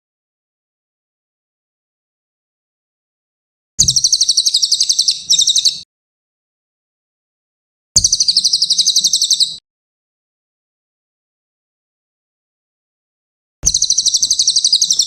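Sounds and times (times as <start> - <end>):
bird singing high trills: 3.8 - 5.8, 8.0 - 9.6, 13.6 - 15.0.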